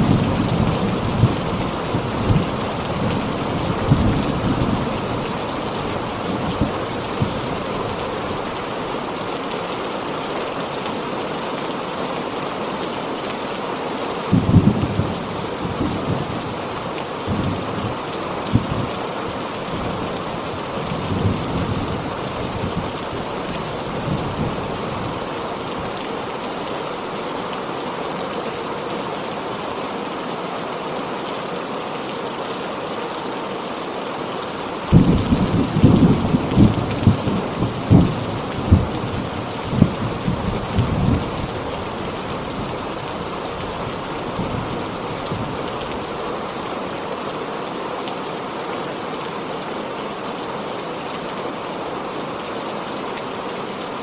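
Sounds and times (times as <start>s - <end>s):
heavy rain: 0.0s - 54.0s
crackling thunder clap: 14.3s - 16.4s, 34.9s - 41.2s
thunder rumbling: 14.3s - 16.6s.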